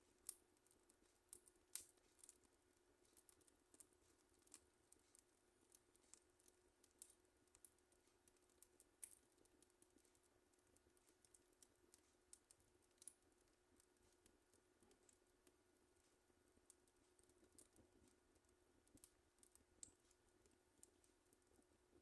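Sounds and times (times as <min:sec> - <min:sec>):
wood fire crackling faintly: 0:00.0 - 0:22.0.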